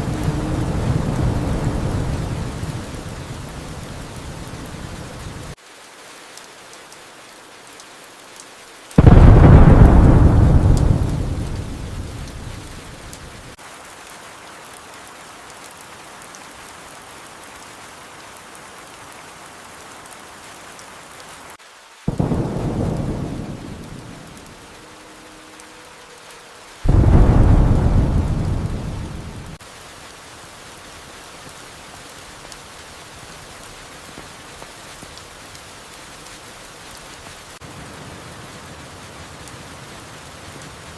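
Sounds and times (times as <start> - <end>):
rolling thunder: 0.0 - 5.4, 9.0 - 13.6, 22.1 - 24.8, 26.9 - 29.6
steady rain: 0.0 - 40.9.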